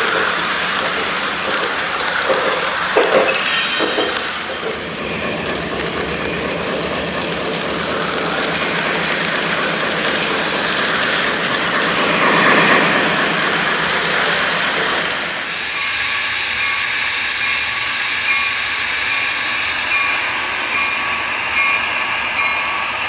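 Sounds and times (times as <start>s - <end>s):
model train rattling on track: 0.0s - 17.6s.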